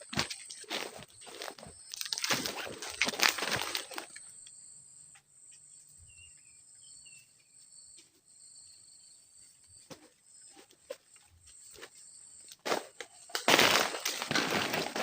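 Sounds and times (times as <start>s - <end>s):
rustling and crunching in undergrowth: 0.0s - 4.3s, 9.4s - 15.0s.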